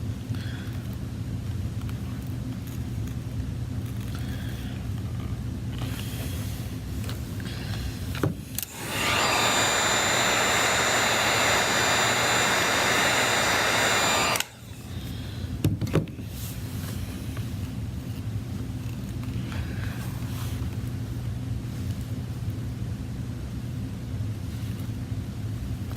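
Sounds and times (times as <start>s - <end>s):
electric blower motor running: 8.6s - 14.8s.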